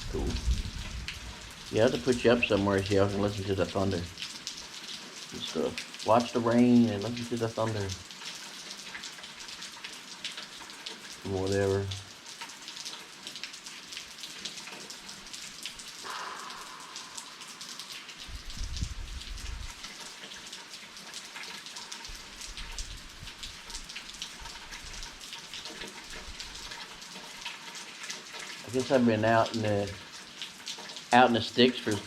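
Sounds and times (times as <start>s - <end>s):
thunder rumbling: 0.0s - 2.6s, 16.0s - 19.8s
rain pattering: 0.0s - 32.0s.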